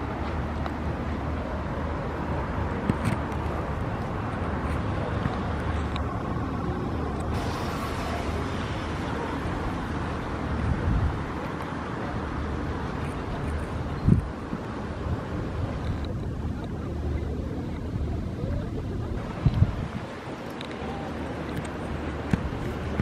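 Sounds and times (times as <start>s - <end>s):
city traffic: 0.0s - 23.0s
low engine hum: 0.0s - 23.0s.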